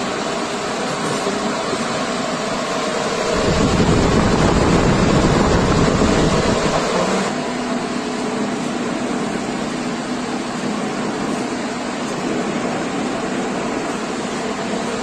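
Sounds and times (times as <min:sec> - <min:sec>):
industrial fan air rush: 0:00.0 - 0:15.0
low hum: 0:02.9 - 0:07.4.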